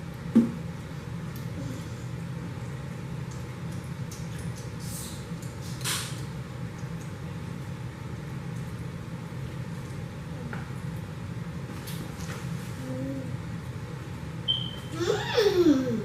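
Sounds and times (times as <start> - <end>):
steady low hum: 0.0 - 16.0
chewing and eating noises: 0.8 - 7.7, 8.3 - 13.8.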